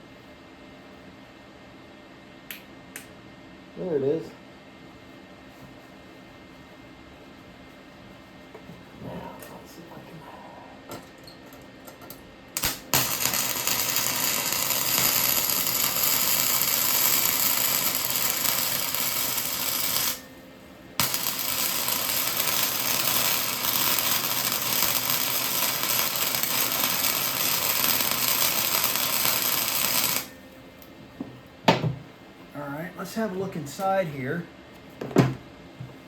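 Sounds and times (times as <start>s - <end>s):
arc welding crackling: 12.5s - 30.9s.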